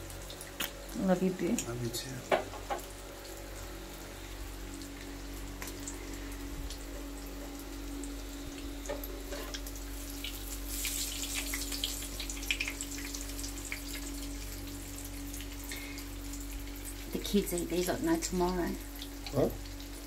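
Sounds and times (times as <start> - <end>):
chicken frying in hot oil: 0.0 - 20.0.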